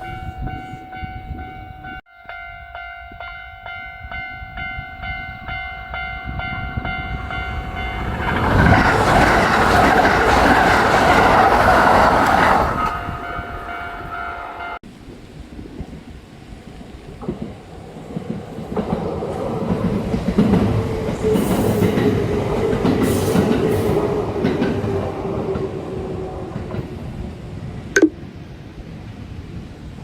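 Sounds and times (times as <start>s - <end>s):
electric train passing: 0.0s - 30.0s
wheels clacking over rail joints: 6.8s - 13.4s, 17.1s - 27.4s.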